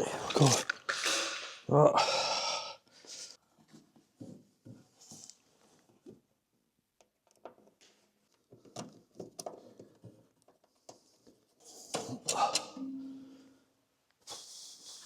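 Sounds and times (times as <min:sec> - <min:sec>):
small clicks and knocks of handling: 0:07.0 - 0:12.6.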